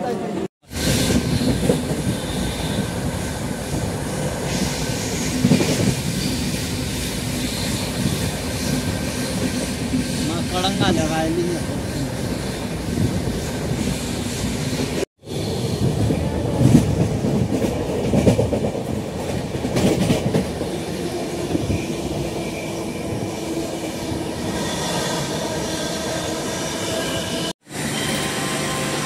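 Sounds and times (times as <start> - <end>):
train coach rumbling on track: 0.0 - 29.0.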